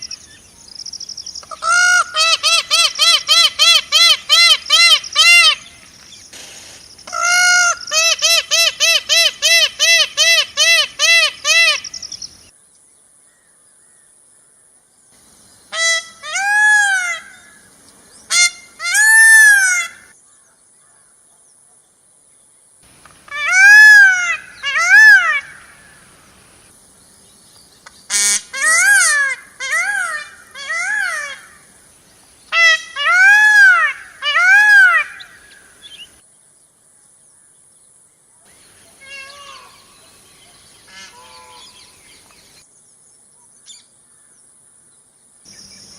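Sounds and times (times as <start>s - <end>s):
faint high hiss: 0.0s - 45.9s
bird honking calls: 40.9s - 41.9s.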